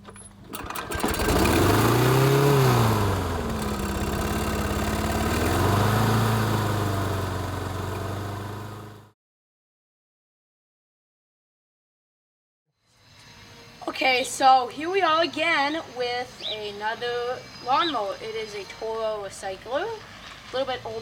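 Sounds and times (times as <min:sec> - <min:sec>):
small petrol engine revving: 0:00.5 - 0:09.2.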